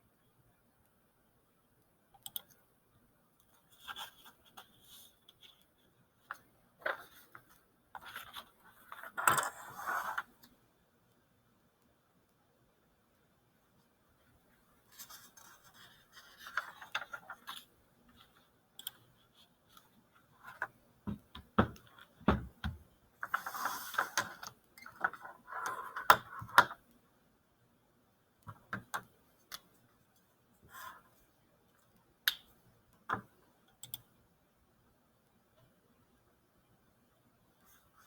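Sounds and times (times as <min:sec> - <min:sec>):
irregular clicks: 0:01.8 - 0:02.6, 0:18.8 - 0:19.1, 0:32.3 - 0:34.1
scraping and rustling of handling: 0:14.8 - 0:22.2.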